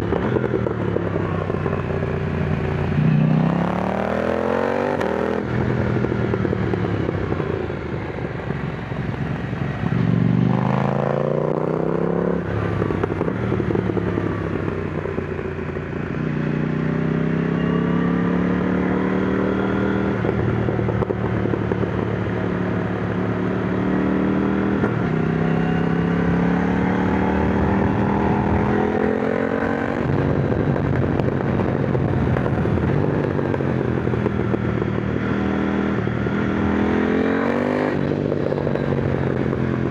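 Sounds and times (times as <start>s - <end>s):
motorcycle engine accelerating: 0.0s - 39.9s
wind rush: 27.2s - 36.9s.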